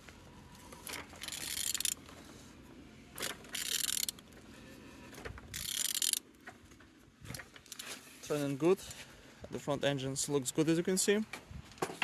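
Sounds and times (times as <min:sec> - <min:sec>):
ratchet wrench clicking: 0:01.2 - 0:02.0, 0:03.2 - 0:04.2, 0:05.5 - 0:06.2.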